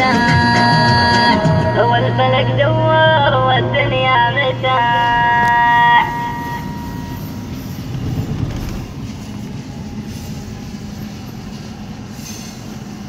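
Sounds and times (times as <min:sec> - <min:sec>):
train wheels rumbling on rails: 0:05.0 - 0:13.0.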